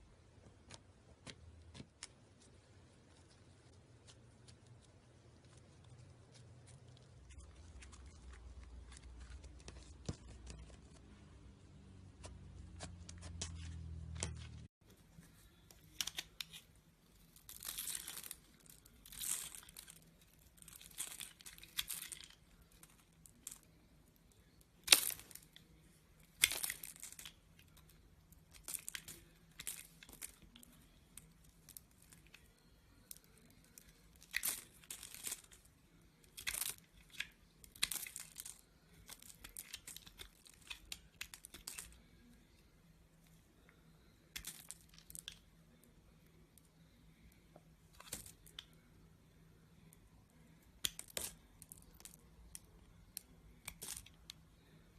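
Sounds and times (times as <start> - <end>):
slime squishing: 12.1 - 42.6.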